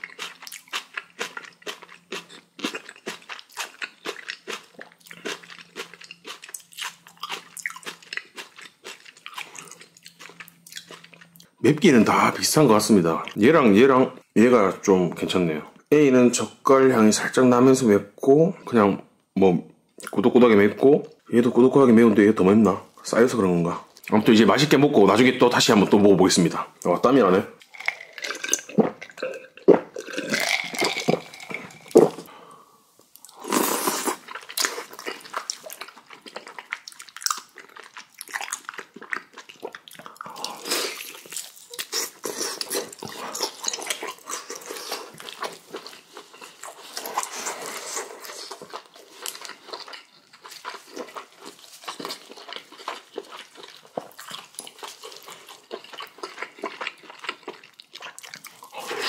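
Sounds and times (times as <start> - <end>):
chewing and crunching food: 0.0 - 13.6, 26.4 - 32.3, 33.0 - 59.0.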